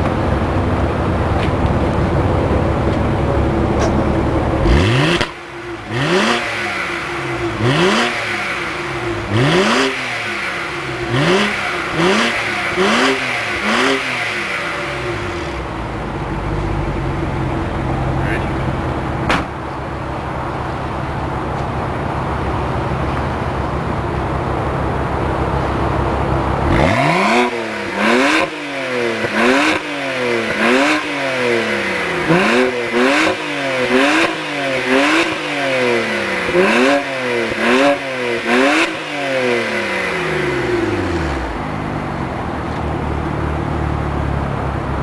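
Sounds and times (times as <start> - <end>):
car engine idling: 0.0 - 45.0
car engine throttle blips: 0.0 - 45.0.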